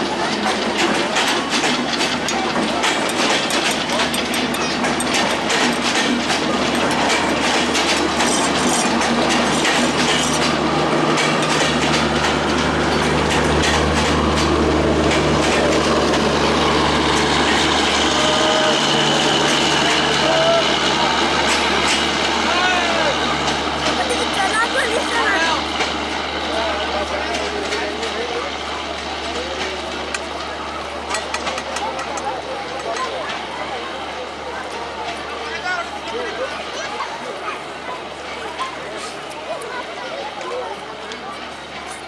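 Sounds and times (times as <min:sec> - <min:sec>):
train low hum: 0:00.0 - 0:42.0
train wheels clattering over rail joints: 0:00.0 - 0:42.0.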